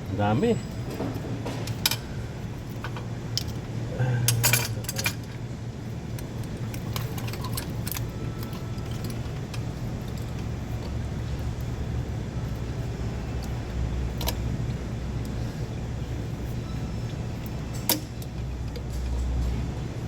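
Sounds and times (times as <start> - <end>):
steady low hum: 0.0 - 20.0
metal parts clinking: 4.3 - 5.4, 6.3 - 10.4.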